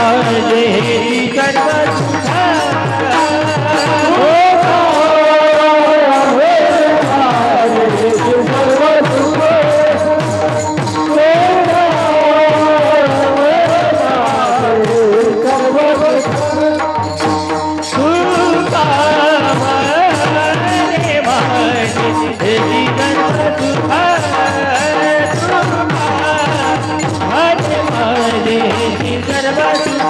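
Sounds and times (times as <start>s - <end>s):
devotional melody: 0.0s - 30.0s
jingling hand cymbals: 0.0s - 30.0s.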